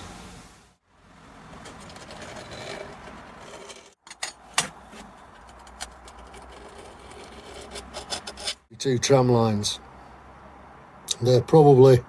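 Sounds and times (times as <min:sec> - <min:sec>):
drill bit scraping steel: 0:01.6 - 0:04.0, 0:05.4 - 0:08.6.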